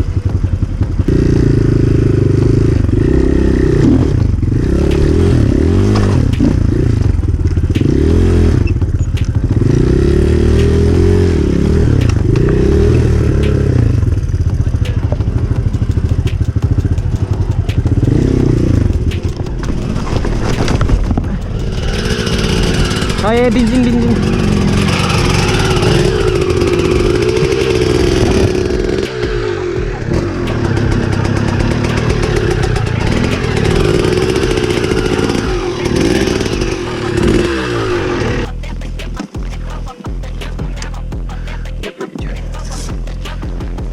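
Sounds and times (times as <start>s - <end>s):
dirt bike engine revving: 0.0s - 43.9s
clicks and clatter: 8.8s - 9.8s, 12.0s - 23.3s.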